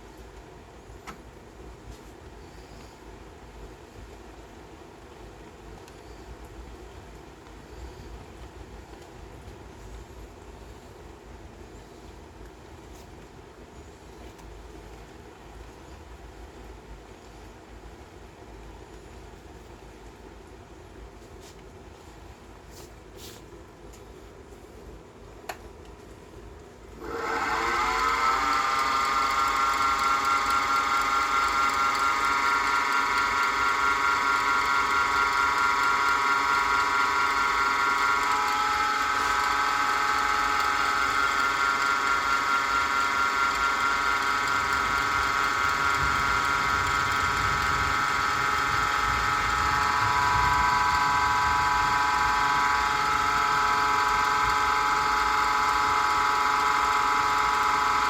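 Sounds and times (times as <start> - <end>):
wood lathe motor whine: 27.0 - 58.0.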